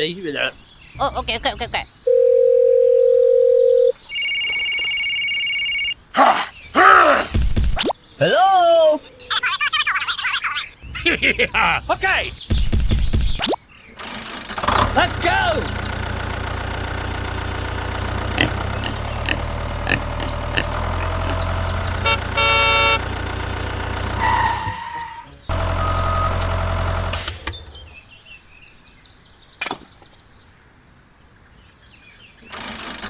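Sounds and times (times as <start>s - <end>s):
tractor engine running: 14.0s - 28.1s
horn honk: 18.4s - 27.4s.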